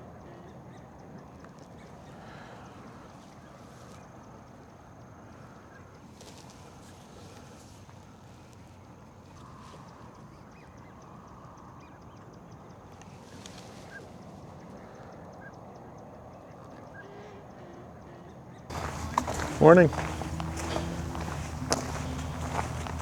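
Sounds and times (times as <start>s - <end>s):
faint waterfowl calls: 18.7s - 23.0s
outdoor background noise: 18.7s - 23.0s.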